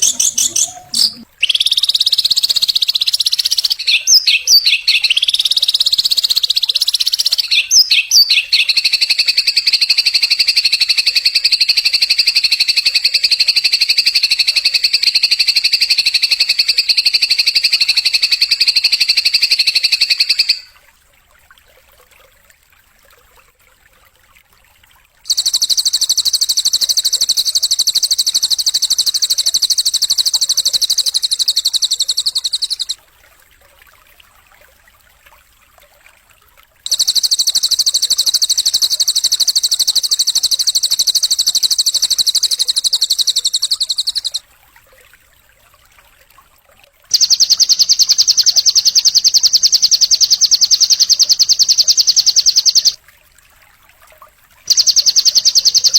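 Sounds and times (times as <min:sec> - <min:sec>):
songbird singing rapid trills: 0:00.0 - 0:20.7, 0:25.3 - 0:33.0, 0:36.9 - 0:44.4, 0:47.1 - 0:53.0, 0:54.7 - 0:55.9.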